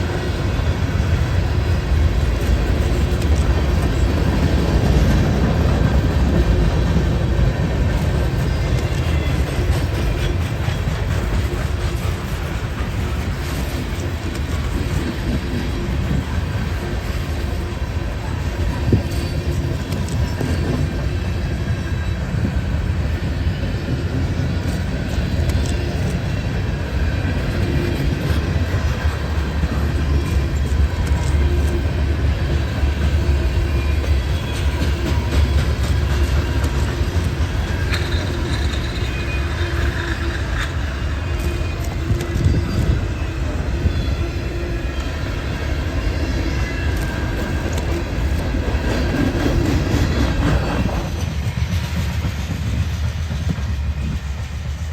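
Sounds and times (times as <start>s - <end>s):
freight train rolling past: 0.0s - 54.9s.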